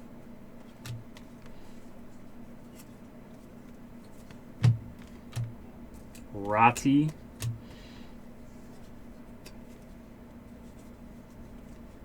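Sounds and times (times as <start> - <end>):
low steady hum: 0.0 - 12.0
cards clicking and tapping on table: 0.6 - 1.6, 4.3 - 5.6
sharp tap and thud: 4.6 - 5.6.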